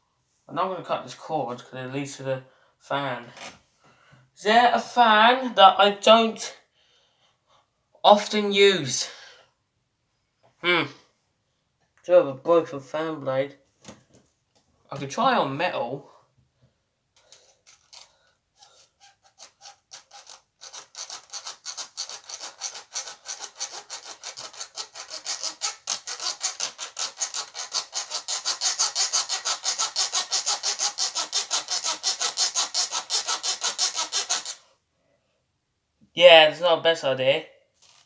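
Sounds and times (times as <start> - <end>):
hacksaw rasping on metal: 17.2 - 34.6.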